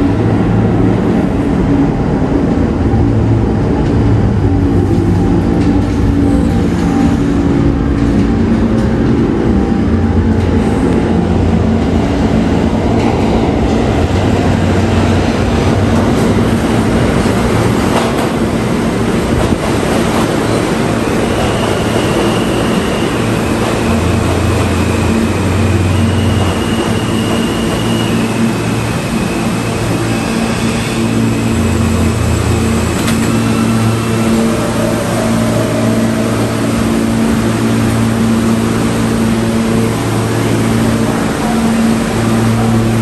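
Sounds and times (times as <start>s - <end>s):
subway train wheels rumbling: 0.0s - 43.0s.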